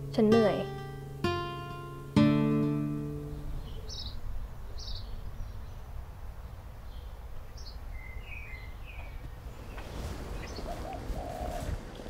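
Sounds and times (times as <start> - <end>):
bird chirps: 3.5 - 11.7.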